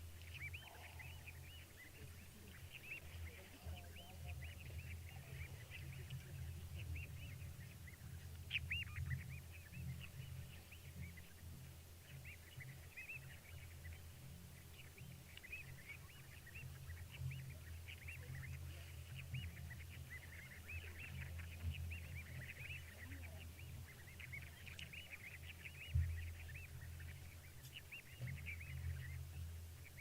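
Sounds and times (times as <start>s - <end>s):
chorus of high chirping calls: 0.0s - 30.0s
steady low hum: 0.0s - 30.0s.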